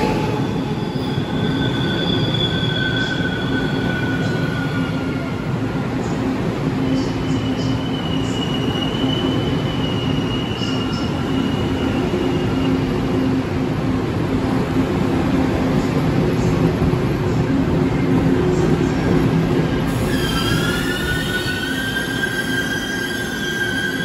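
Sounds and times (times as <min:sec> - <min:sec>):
train wheels rumbling on rail: 0:00.0 - 0:24.0
high wheel squeal: 0:00.4 - 0:05.3, 0:19.9 - 0:24.0.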